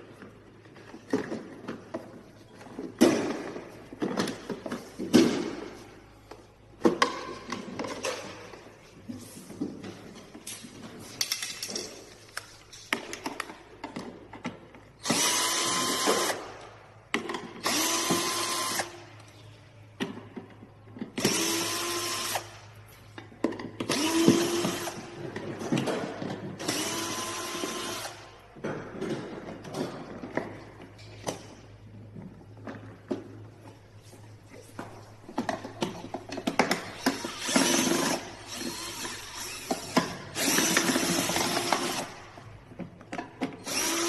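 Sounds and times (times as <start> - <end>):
parts clicking and knocking: 9.7 - 33.8, 34.7 - 44.0
power screwdriver driving screws: 37.0 - 42.2, 43.6 - 44.0.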